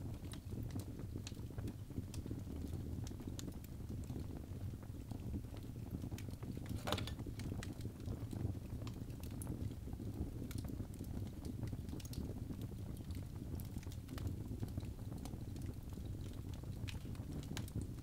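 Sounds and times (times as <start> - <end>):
fire crackling and popping: 0.0 - 18.0
flames rumbling: 0.0 - 18.0.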